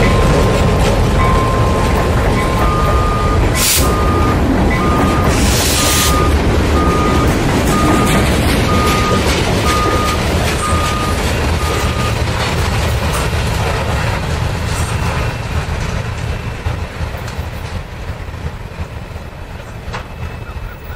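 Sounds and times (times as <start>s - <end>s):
train wheels clacking: 0.0s - 20.9s
short high beeps: 1.2s - 12.2s.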